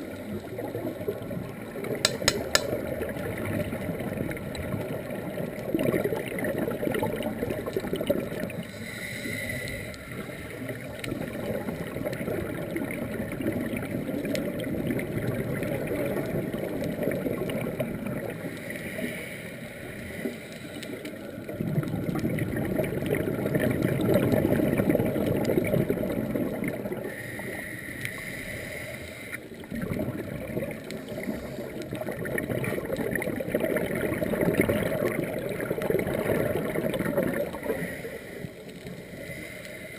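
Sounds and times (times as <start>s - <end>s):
gurgling exhaled bubbles: 0.0s - 19.2s, 20.9s - 27.6s, 29.4s - 39.6s
regulator inhalation hiss: 8.7s - 10.2s.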